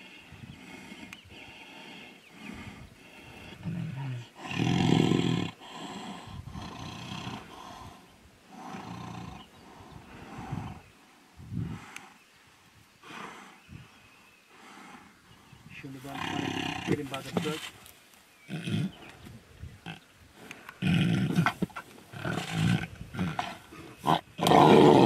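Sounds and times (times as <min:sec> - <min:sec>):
tigers growling: 0:00.0 - 0:11.0, 0:14.5 - 0:17.8, 0:19.8 - 0:25.0.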